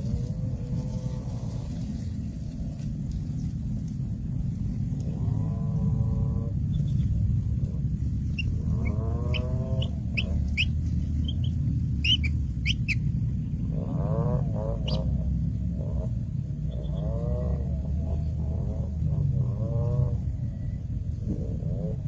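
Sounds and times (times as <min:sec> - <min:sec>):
steady low rumble: 0:00.0 - 0:22.0
birds chirping and calling: 0:06.1 - 0:20.2.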